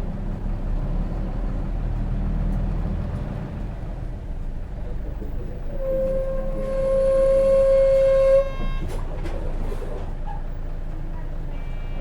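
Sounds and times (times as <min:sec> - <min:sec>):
bus engine rumble: 0:00.0 - 0:12.0
bus brakes squealing: 0:05.6 - 0:10.4.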